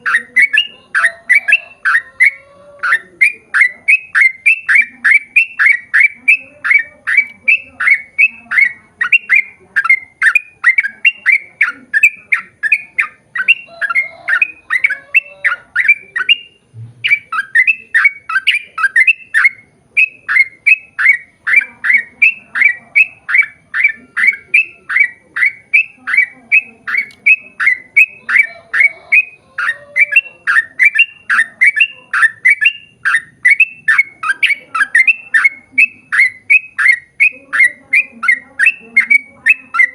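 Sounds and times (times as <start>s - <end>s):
bulbul singing rapid notes: 0.0s - 39.9s.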